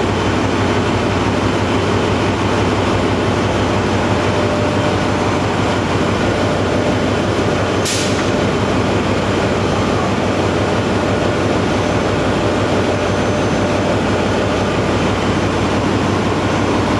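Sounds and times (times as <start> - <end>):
diesel generator running: 0.0 - 16.9
brief hiss: 7.8 - 8.4.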